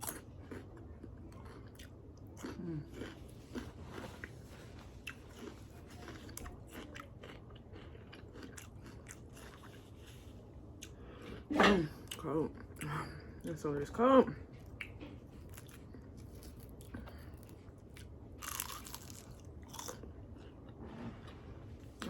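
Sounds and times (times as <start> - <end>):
crisp crunching of celery: 0.0 - 10.2, 15.5 - 20.6.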